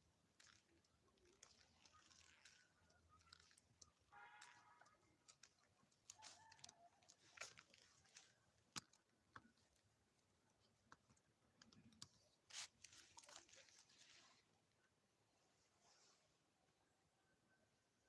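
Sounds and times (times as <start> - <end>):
rustling: 12.4 - 14.5.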